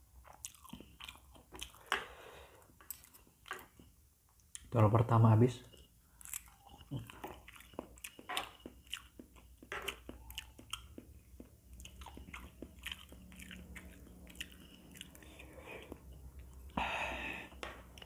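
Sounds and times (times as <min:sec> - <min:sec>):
chewing noodles with clicks: 0:05.7 - 0:16.8.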